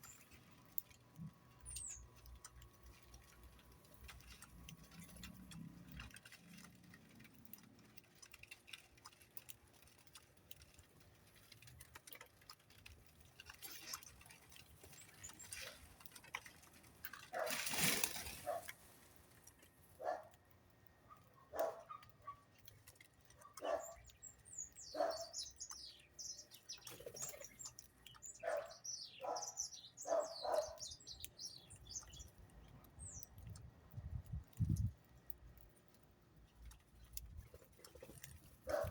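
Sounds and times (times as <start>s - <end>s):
faint ticks and taps: 0.1s - 13.6s
loud rustle: 17.3s - 19.2s
birds calling: 23.3s - 33.3s, 37.0s - 38.9s.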